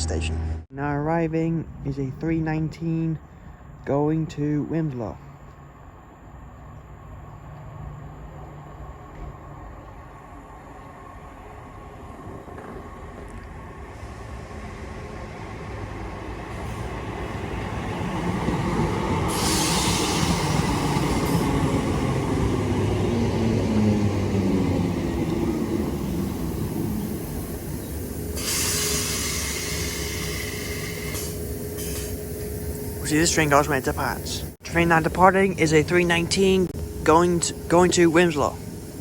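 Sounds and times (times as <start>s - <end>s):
electric train rumbling to a stop: 4.5s - 39.0s
train brake hiss: 19.3s - 21.6s, 26.3s - 34.2s, 37.0s - 39.0s.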